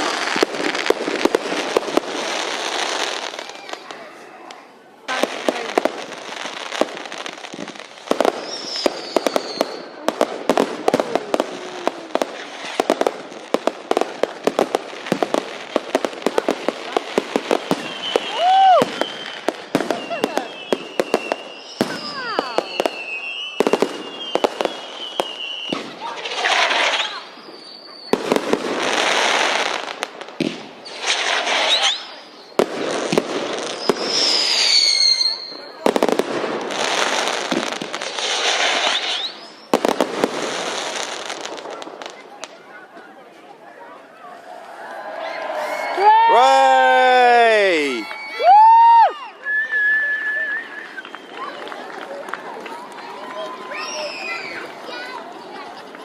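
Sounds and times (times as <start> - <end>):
fireworks bangs and crackling: 0.0 - 56.0
firework whistle: 8.2 - 10.0, 17.6 - 29.6, 30.8 - 32.8, 33.7 - 35.8, 38.1 - 41.0, 44.8 - 51.6.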